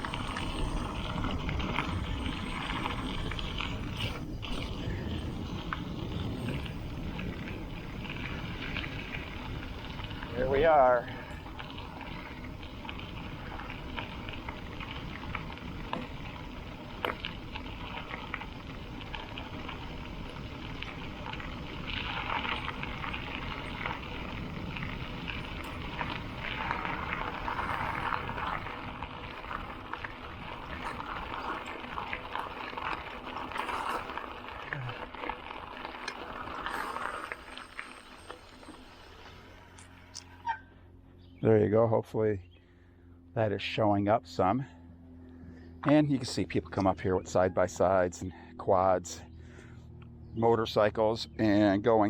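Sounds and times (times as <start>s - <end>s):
bicycle tyres crunching on gravel: 0.0s - 41.3s.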